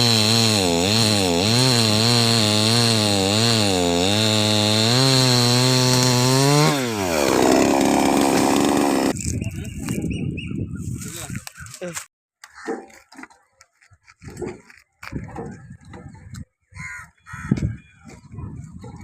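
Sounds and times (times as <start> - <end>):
chainsaw engine cutting: 0.0 - 9.2.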